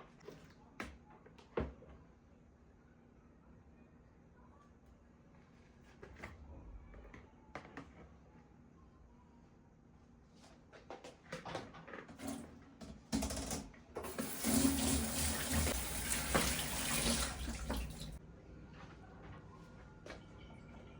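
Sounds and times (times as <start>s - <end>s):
water tap running into sink: 14.0s - 18.2s.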